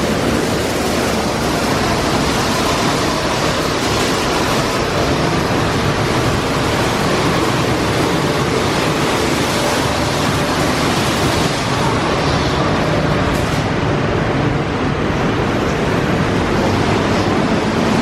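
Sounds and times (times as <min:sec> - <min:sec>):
spraying water rushing: 0:00.0 - 0:14.4.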